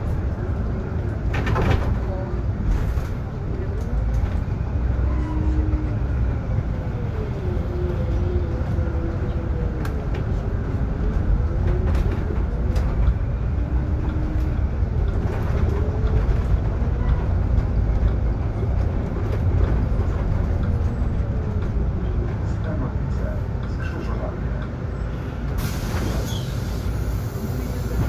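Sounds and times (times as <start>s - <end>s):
bus drivetrain and road rumble: 0.0s - 28.0s
bus joint squeaking: 26.0s - 26.7s.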